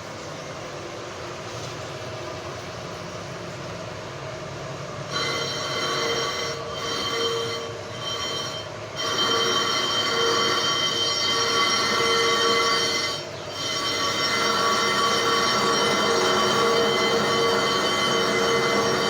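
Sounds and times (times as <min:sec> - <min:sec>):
machine humming: 0:04.5 - 0:19.0
metal-on-metal squeal of cutting tool: 0:05.1 - 0:19.0.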